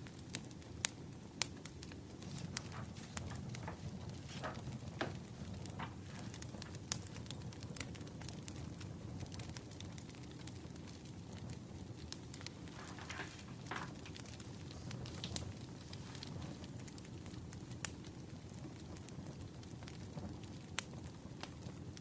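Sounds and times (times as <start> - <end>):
firewood crackling and popping: 0.0 - 22.0
low rumble of fire: 0.0 - 22.0
soft hiss: 9.9 - 18.6.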